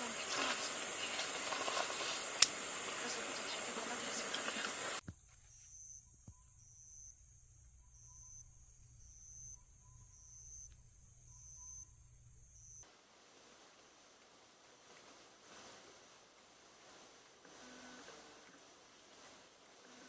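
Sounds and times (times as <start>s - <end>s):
pulsed insect trill: 0.0s - 12.8s
crickets and insects droning: 0.0s - 20.0s.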